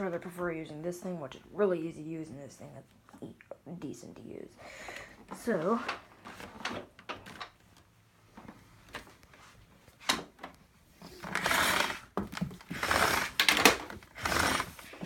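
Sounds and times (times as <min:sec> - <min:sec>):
power cord rasping pulls: 0:11.1 - 0:15.0.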